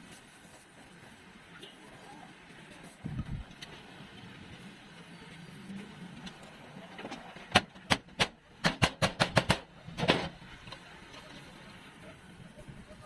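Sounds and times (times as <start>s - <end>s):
sharp knocks: 7.5s - 10.4s.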